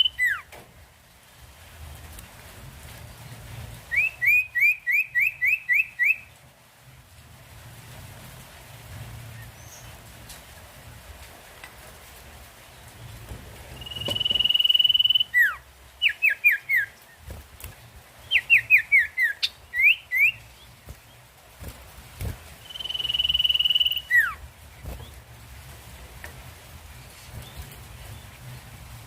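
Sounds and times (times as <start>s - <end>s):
songbird whistling calls: 0.0s - 0.5s, 3.9s - 6.3s, 13.7s - 17.0s, 18.2s - 20.5s, 22.6s - 24.4s.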